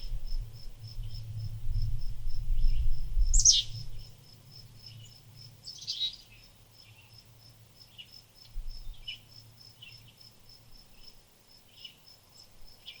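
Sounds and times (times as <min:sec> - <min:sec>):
high insect chirping: 0:00.0 - 0:13.0
short bird chirps: 0:03.4 - 0:03.7.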